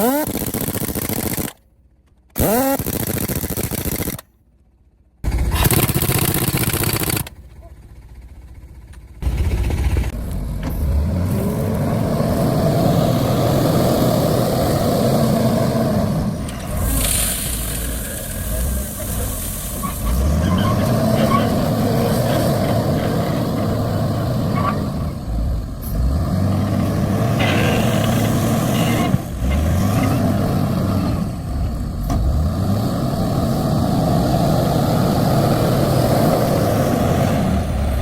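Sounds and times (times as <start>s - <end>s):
heavy vehicle engine revving: 9.2s - 38.0s.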